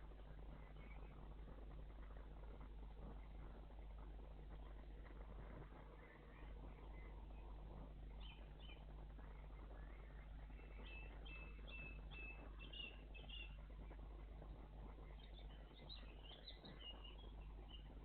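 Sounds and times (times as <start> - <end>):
faint songbird calls: 0.4 - 1.3, 5.9 - 18.0.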